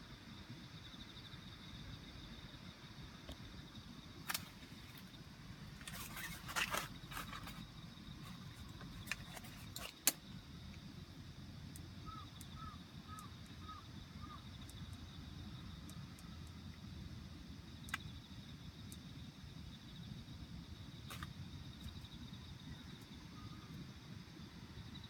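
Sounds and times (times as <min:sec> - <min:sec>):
handling rustles: 0:05.8 - 0:07.6, 0:08.2 - 0:10.2.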